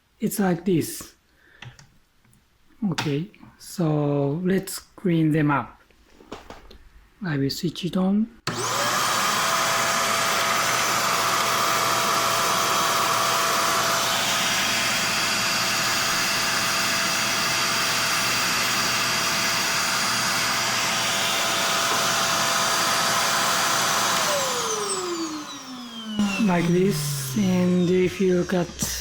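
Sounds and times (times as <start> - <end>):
vacuum cleaner motor whining: 8.5 - 29.0.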